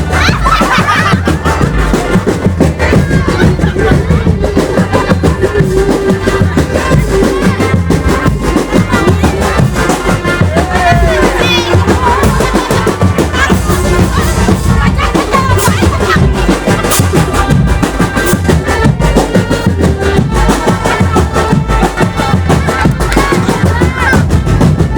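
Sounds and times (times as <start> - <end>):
loud music with drum beat: 0.0 - 24.9.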